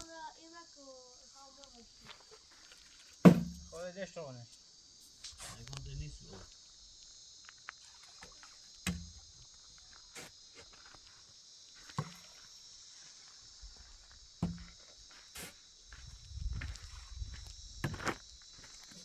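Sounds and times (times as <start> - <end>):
insects chirring: 0.0 - 19.0
sharp knocks with low thud: 3.3 - 3.8.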